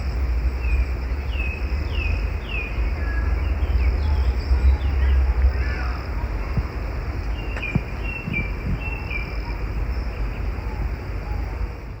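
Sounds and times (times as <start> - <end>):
insect drone: 0.0 - 12.0
bird chirps: 7.3 - 11.5.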